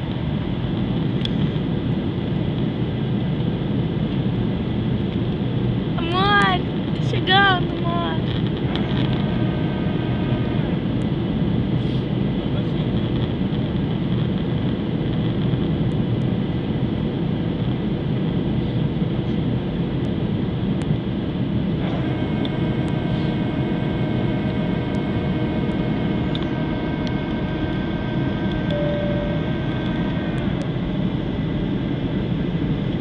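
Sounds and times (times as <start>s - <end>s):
airliner engine and air rush: 0.0s - 33.0s
multi-tone whine: 4.1s - 16.8s, 17.6s - 33.0s.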